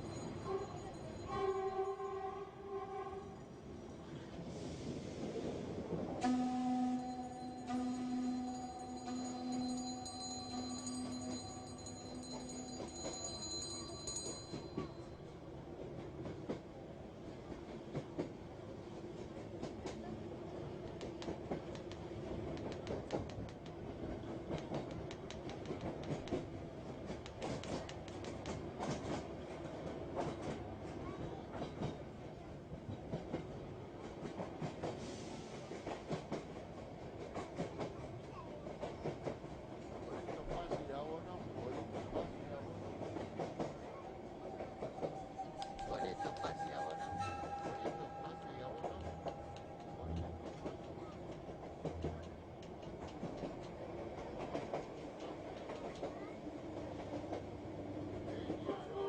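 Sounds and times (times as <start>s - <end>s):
train rumbling on track: 0.0s - 59.0s
wheels clattering on rails: 7.1s - 15.2s, 20.8s - 58.7s
wheels clicking over rails: 20.8s - 32.0s.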